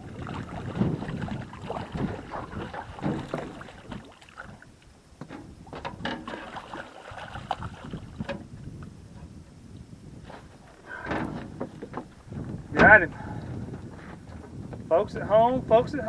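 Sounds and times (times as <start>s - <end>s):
water splashing around boat: 0.0s - 8.9s
wind on microphone: 0.0s - 16.0s.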